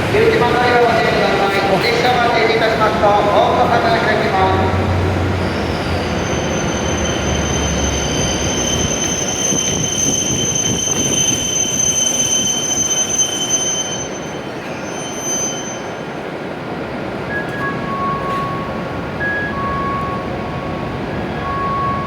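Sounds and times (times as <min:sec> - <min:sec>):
train rumble: 0:00.0 - 0:15.3, 0:16.0 - 0:22.0
high-pitched brake squeal: 0:05.4 - 0:16.2.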